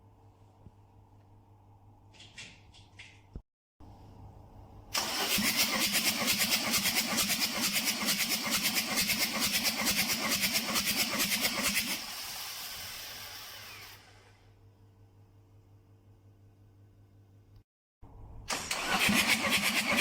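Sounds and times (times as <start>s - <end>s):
diesel engine cranking on starter: 5.0s - 8.2s, 18.5s - 20.0s.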